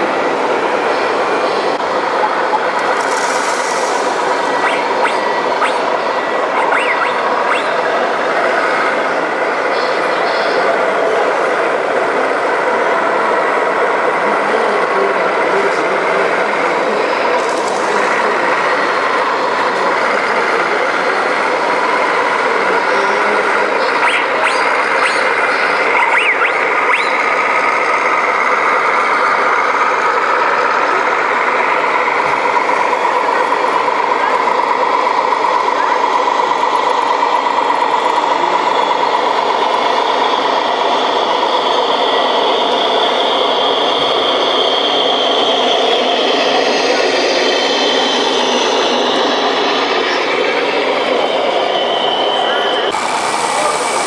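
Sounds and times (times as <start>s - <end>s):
background chatter: 0.1s - 27.2s, 29.2s - 54.0s
model truck sound effects: 1.9s - 9.7s, 19.2s - 45.7s
reversing beeps: 6.6s - 7.8s, 23.8s - 27.2s.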